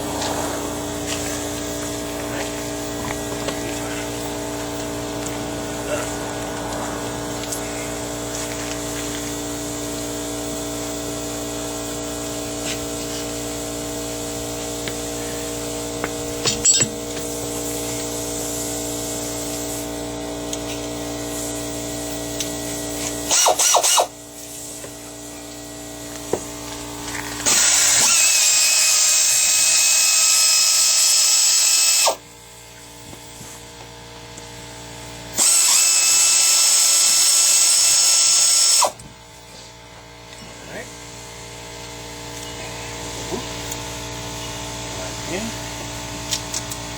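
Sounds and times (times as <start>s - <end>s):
power tool whining hiss: 0.0s - 32.2s, 35.3s - 39.0s.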